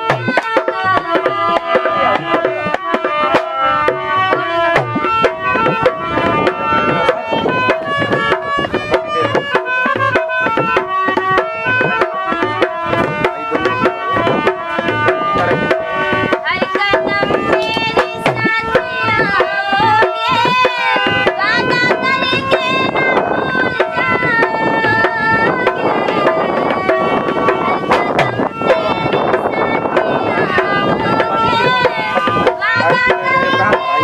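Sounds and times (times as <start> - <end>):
tabla rhythm: 0.0 - 34.0.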